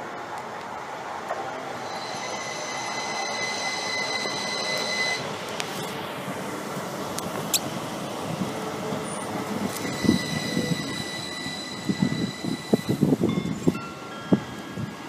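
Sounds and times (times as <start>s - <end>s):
train high whine: 0.0s - 15.0s.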